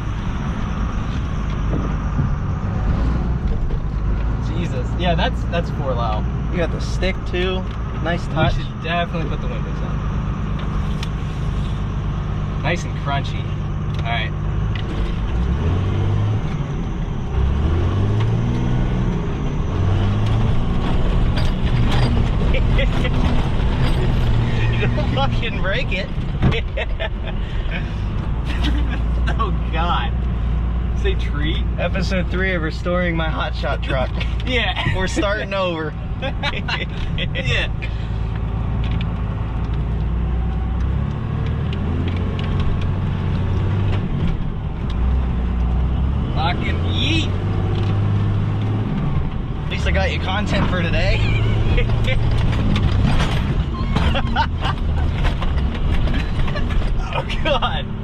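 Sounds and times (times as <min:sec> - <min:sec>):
truck engine labouring: 0:00.0 - 0:58.0
vehicle rumbling over rocky terrain: 0:00.0 - 0:58.0
body knocks and rattles: 0:01.5 - 0:02.6, 0:20.2 - 0:27.0, 0:51.8 - 0:57.8
pickup truck engine under load: 0:13.7 - 0:27.4, 0:47.4 - 0:58.0.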